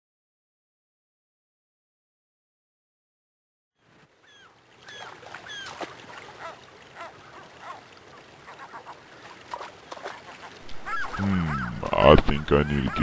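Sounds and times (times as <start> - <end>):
birds chirping: 4.2 - 13.0.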